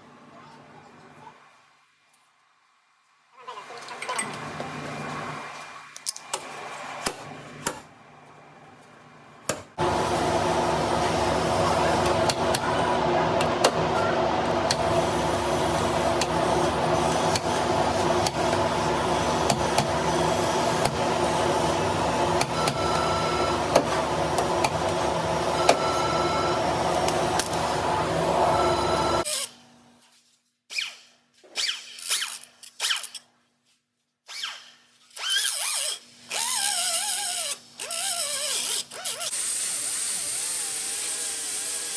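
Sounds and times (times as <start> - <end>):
power tool running: 9.8 - 29.6, 38.0 - 41.9.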